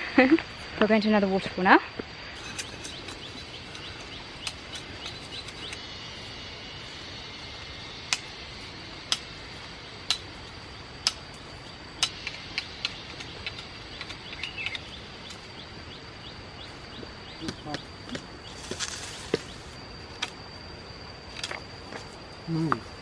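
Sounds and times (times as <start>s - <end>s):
insect drone: 0.0s - 23.0s
bird chirps: 2.4s - 5.8s, 11.6s - 19.6s
sharp ticks: 2.4s - 5.8s.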